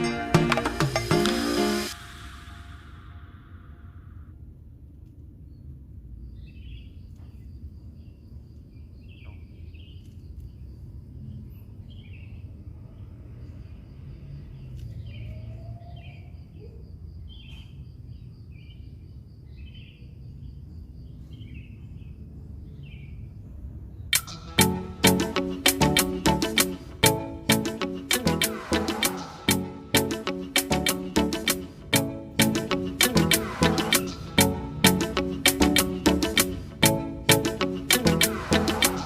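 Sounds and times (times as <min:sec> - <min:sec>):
music: 0:00.0 - 0:02.1, 0:24.2 - 0:39.0
high pulsing trill: 0:24.2 - 0:39.0.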